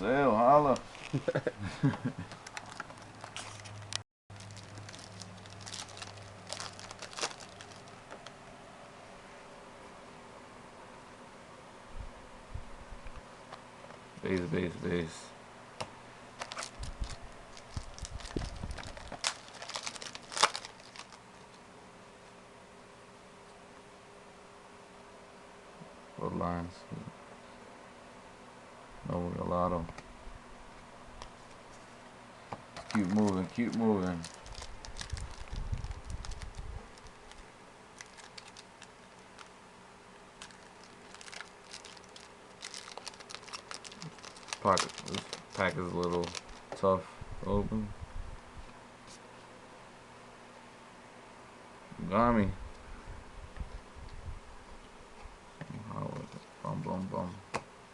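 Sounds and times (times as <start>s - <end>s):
foil wrapper rustling: 0.7s - 1.4s, 2.1s - 8.3s, 16.4s - 21.6s, 32.8s - 39.5s, 40.4s - 46.8s
packaging crinkling and clicking: 2.2s - 8.4s, 16.4s - 21.6s, 32.8s - 37.4s, 38.0s - 39.5s, 40.4s - 46.8s.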